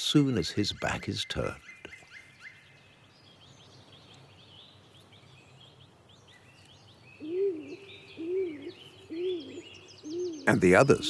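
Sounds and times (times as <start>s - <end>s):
small birds chirping: 0.0s - 11.0s
dove cooing: 7.2s - 11.0s.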